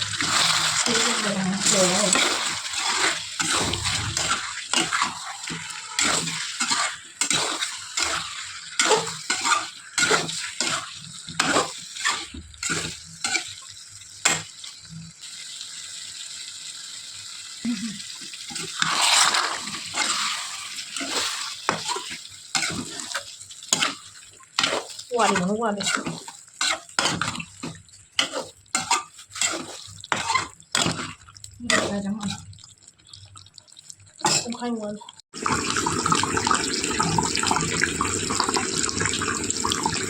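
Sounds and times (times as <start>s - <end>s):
utensil scraping frying pan: 0.0s - 14.8s, 18.4s - 33.2s
hiss of frying: 0.0s - 32.5s.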